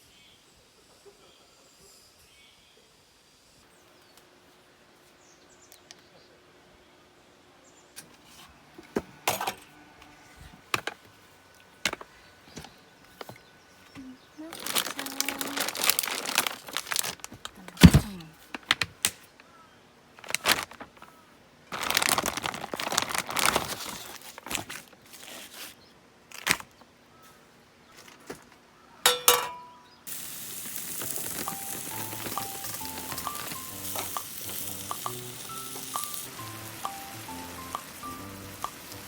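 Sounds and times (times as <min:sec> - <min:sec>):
rustling and crinkling: 0:10.2 - 0:19.5, 0:20.1 - 0:28.7, 0:30.1 - 0:36.1
rain hissing: 0:14.6 - 0:17.0, 0:30.1 - 0:39.0
metal clank ringing: 0:29.1 - 0:29.9
background music: 0:30.7 - 0:39.0.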